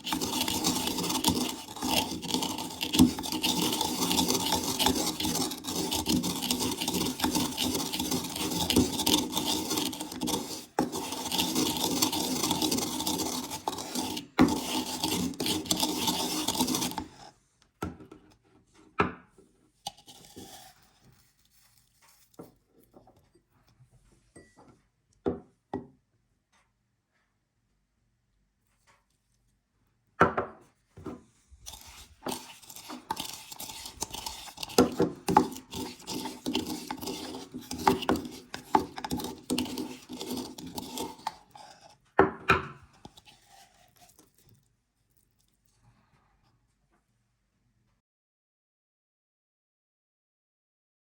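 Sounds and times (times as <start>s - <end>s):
spice grinder grinding chips: 0.0s - 17.3s, 19.9s - 22.4s, 31.6s - 42.0s, 42.9s - 44.6s.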